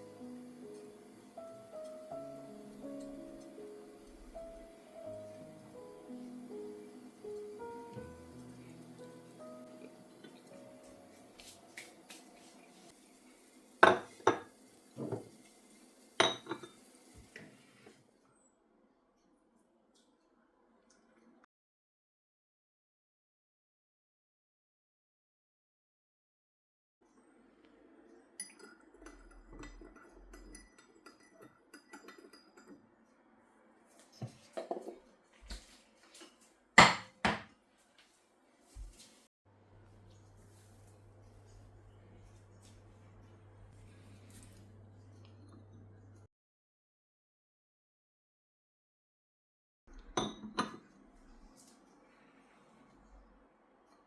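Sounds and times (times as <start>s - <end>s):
crockery and cutlery clinking: 13.8s - 15.3s, 16.2s - 16.8s, 28.4s - 32.9s.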